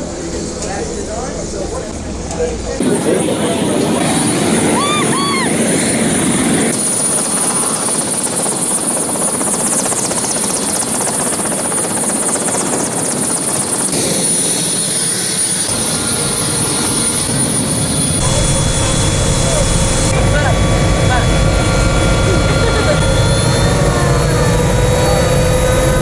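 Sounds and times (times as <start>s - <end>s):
helicopter engine and rotor: 0.0s - 26.0s
high steady whine: 13.8s - 26.0s.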